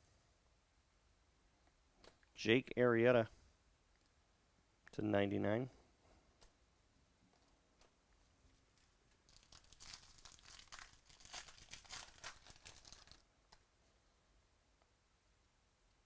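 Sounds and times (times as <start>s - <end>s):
foil wrapper crinkling and tearing: 8.8s - 13.2s.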